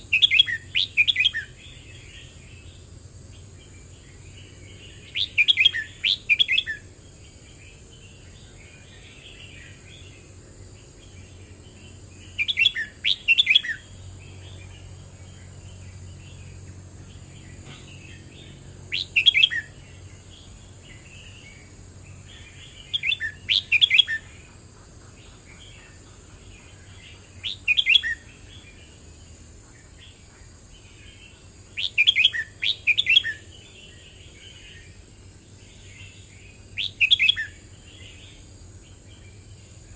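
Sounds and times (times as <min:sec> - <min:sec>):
bird singing whistled phrases: 0:00.1 - 0:01.6, 0:05.1 - 0:06.8, 0:12.4 - 0:13.9, 0:18.9 - 0:19.7, 0:22.8 - 0:24.3, 0:27.4 - 0:28.2, 0:31.8 - 0:33.4, 0:36.8 - 0:37.6.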